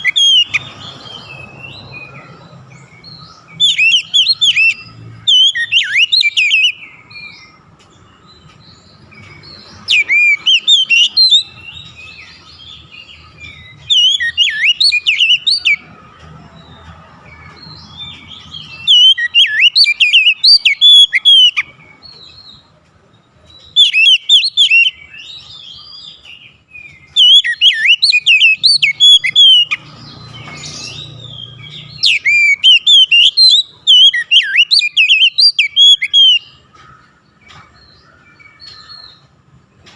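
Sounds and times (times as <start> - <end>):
bird singing whistles and chirps: 0.0 - 15.9, 16.6 - 22.7, 23.5 - 36.7.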